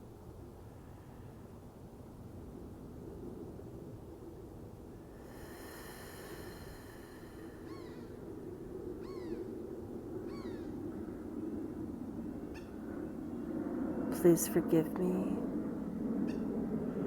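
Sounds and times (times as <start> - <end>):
low background hum: 5.1 - 8.4, 14.1 - 15.7
thin high whine: 5.2 - 8.1.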